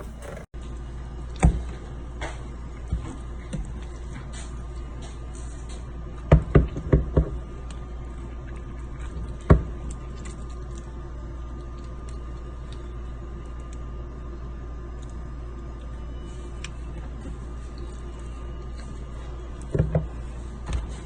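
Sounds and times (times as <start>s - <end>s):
steady low hum: 0.0s - 0.5s.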